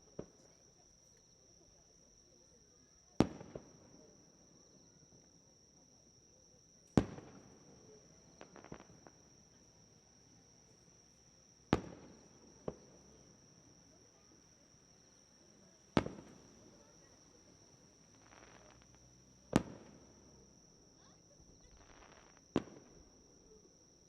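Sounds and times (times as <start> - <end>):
light firework pop: 0.1 - 0.6, 3.2 - 3.8, 6.9 - 9.7, 11.7 - 13.4, 15.9 - 17.2, 18.1 - 20.4, 21.5 - 23.2
fireworks bangs echoing: 3.2 - 3.7, 7.0 - 7.6, 8.3 - 9.2, 11.7 - 13.2, 15.9 - 17.1, 18.1 - 20.3, 21.6 - 23.0
fireworks crackles: 7.0 - 9.3, 15.4 - 20.4, 21.0 - 23.2.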